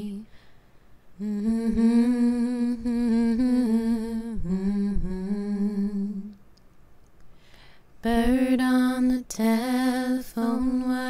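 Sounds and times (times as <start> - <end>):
woman humming: 1.2 - 6.4.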